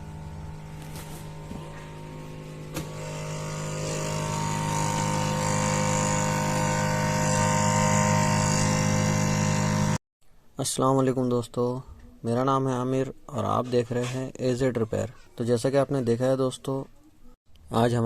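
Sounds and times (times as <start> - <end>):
freezer fan humming: 0.0 - 10.0.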